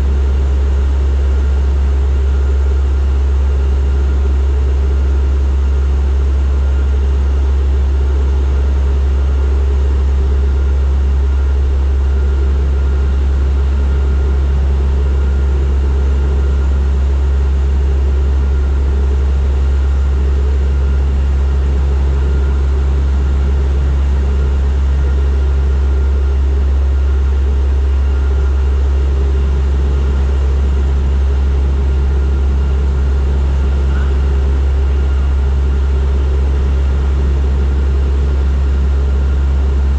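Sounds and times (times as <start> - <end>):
faint engine whine: 0.0 - 39.9
propeller plane engines droning: 0.0 - 39.9.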